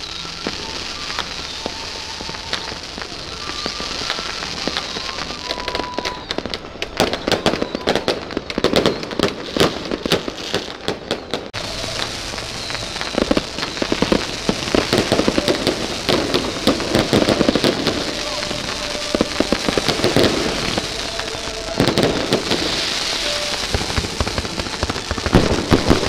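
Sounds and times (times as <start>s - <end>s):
fireworks crackling and popping: 0.0s - 26.0s
steady hiss: 11.6s - 26.0s.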